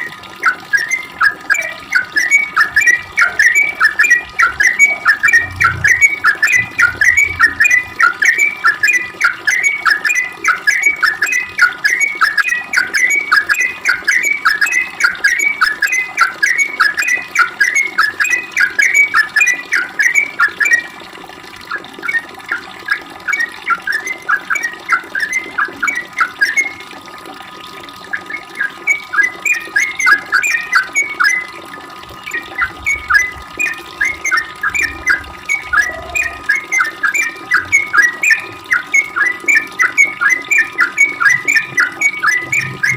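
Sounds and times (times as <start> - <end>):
bird chattering song: 0.4 - 20.9, 32.2 - 42.9.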